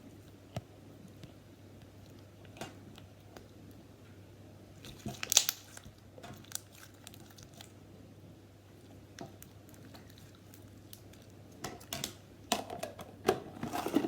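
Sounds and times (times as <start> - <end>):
slime crackling: 4.8 - 7.8, 8.8 - 12.2.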